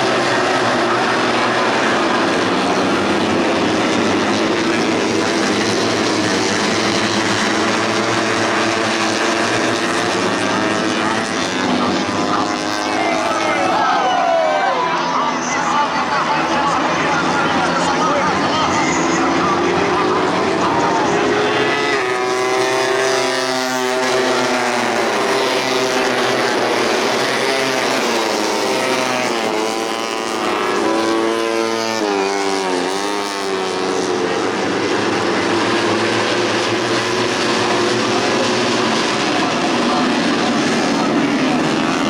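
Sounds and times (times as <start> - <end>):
motorcycles sweeping past: 0.0 - 42.0
racing motorcycles revving: 0.0 - 42.0.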